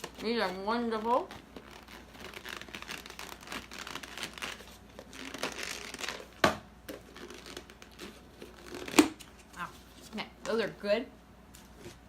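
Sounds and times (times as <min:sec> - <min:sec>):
plastic packaging crinkling: 0:01.0 - 0:06.4.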